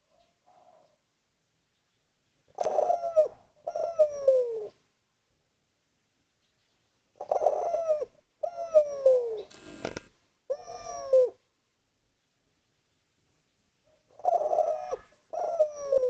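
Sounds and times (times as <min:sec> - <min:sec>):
dove cooing: 0:02.5 - 0:04.8, 0:07.2 - 0:11.4, 0:14.0 - 0:16.0.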